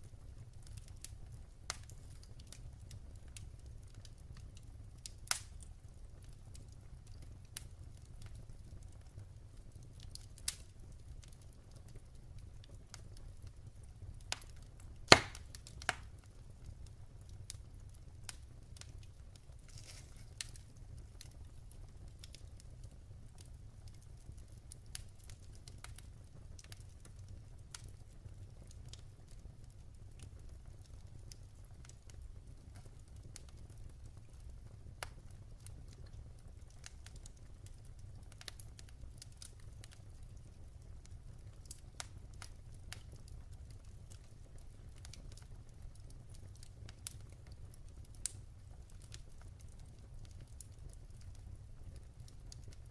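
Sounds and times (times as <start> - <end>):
wood fire crackling: 0.0 - 52.9
sharp loud pop: 15.1 - 15.4.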